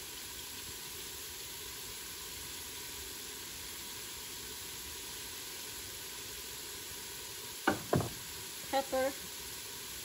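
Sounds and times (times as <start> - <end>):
vegetables sizzling in a pot: 0.0 - 10.0.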